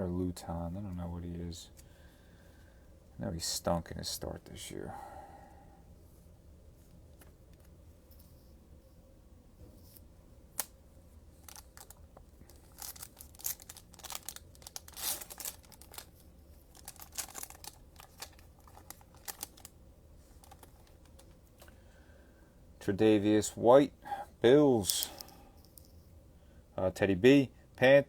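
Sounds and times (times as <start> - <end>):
foil wrapper crinkling: 11.4 - 21.7.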